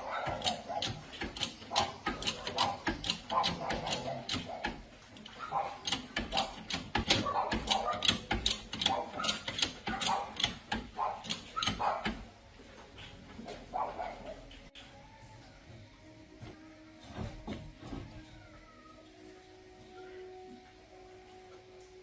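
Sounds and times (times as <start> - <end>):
metallic clicks and clatter of tools: 0.2 - 12.2.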